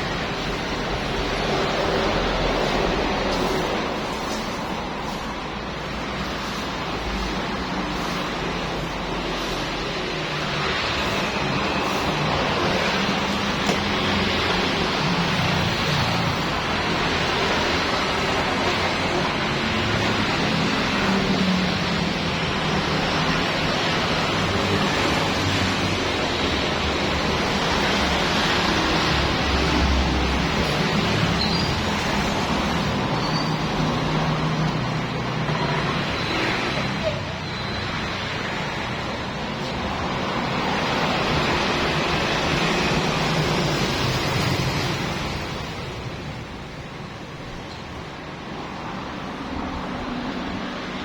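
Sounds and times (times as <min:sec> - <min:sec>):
pressure washer engine hum: 0:00.0 - 0:36.9
water spray rushing: 0:00.3 - 0:16.6.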